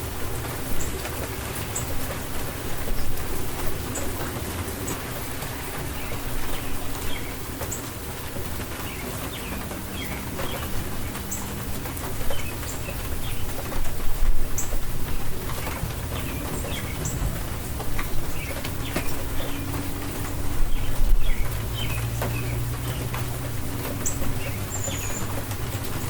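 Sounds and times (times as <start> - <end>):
steady rain falling: 0.0 - 26.0
birds chirping: 0.4 - 26.0
low rumble: 9.5 - 23.7.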